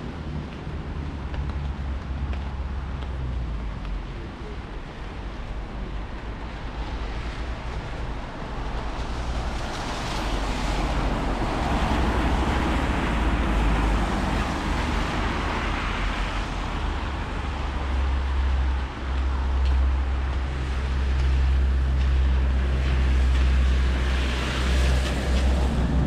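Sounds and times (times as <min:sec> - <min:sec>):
wind rumble on microphone: 0:00.0 - 0:26.0
car tyres hissing on wet road: 0:06.5 - 0:26.0.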